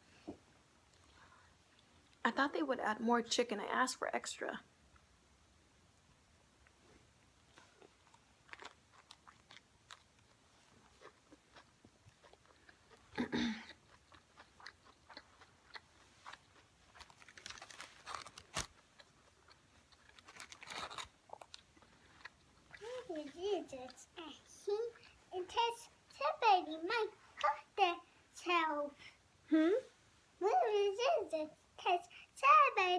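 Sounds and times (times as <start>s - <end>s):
chewing with small crunches: 0.8s - 2.2s, 6.6s - 27.8s.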